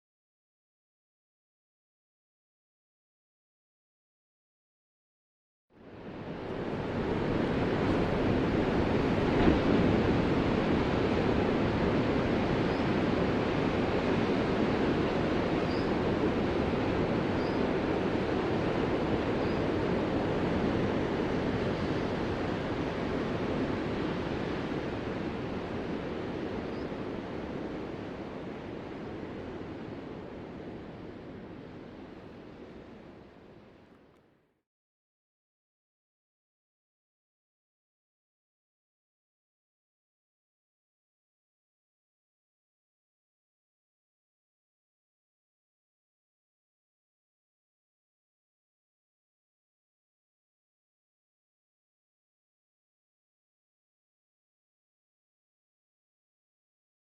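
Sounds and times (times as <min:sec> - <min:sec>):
ocean waves breaking: 0:05.8 - 0:33.3.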